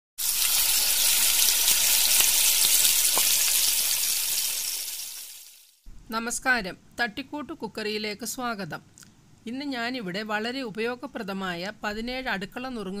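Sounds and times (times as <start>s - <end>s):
food frying in hot oil: 0.2s - 5.8s
oil crackles: 0.3s - 5.6s.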